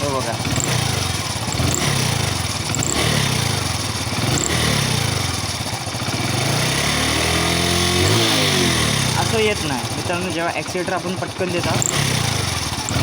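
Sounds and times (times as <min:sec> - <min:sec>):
engine popping: 0:00.0 - 0:13.0
motorcycle engine revving: 0:00.0 - 0:13.0.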